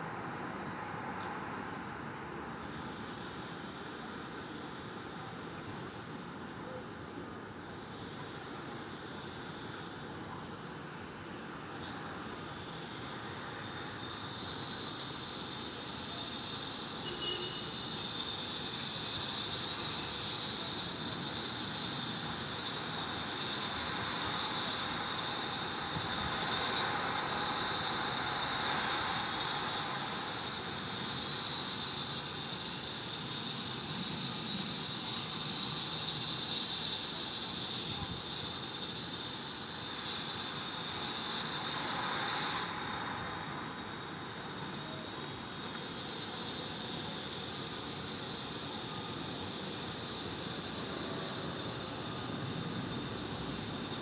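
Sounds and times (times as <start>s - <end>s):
high-pitched whine: 12.0s - 54.0s.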